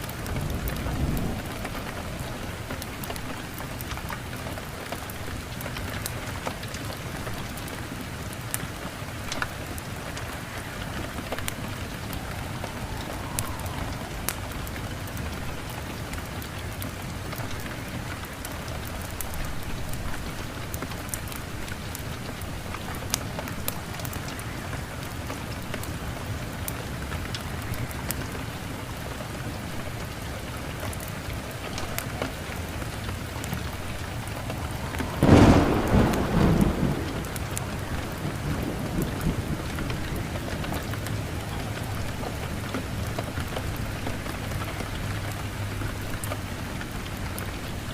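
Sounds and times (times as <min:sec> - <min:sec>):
steady rain: 0:00.0 - 0:47.9
thunder clap rumbling: 0:00.1 - 0:04.2, 0:08.8 - 0:17.4, 0:32.8 - 0:44.6.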